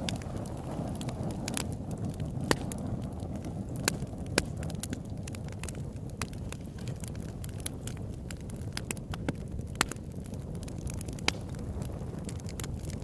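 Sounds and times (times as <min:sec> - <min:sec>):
campfire wood crackling: 0:00.0 - 0:13.0.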